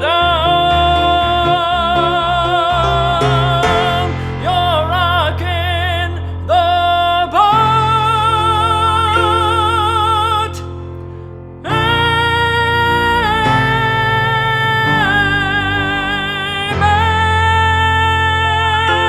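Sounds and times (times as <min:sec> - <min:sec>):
musical accompaniment: 0:00.0 - 0:06.3
person singing with vibrato: 0:00.0 - 0:11.0, 0:11.6 - 0:19.0
loud full chord: 0:00.9 - 0:06.0.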